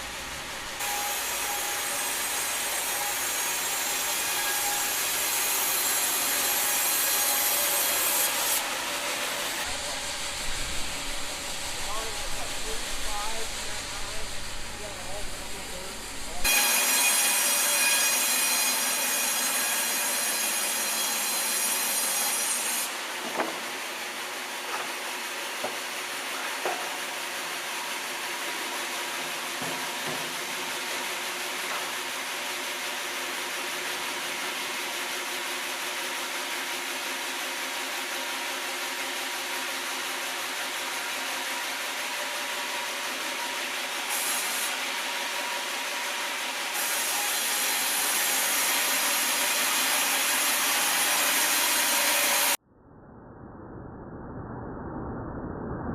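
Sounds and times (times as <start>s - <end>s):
sawmill blade whining: 0.0s - 21.3s.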